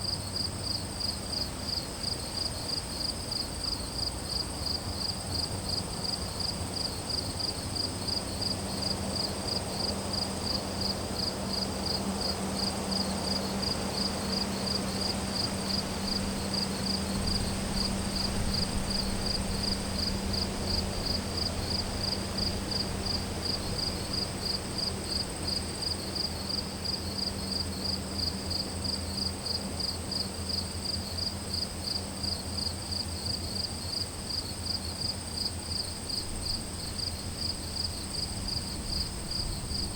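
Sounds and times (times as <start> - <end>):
crickets chirping: 0.0 - 39.9
high-pitched insect trill: 0.0 - 39.9
faint low rumble: 35.9 - 39.9.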